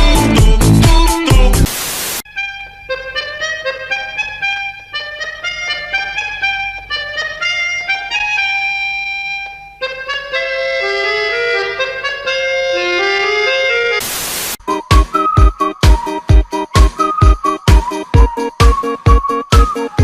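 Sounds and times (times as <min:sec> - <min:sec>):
instrumental background music: 0:00.0 - 0:01.7, 0:02.3 - 0:14.0, 0:14.6 - 0:20.0.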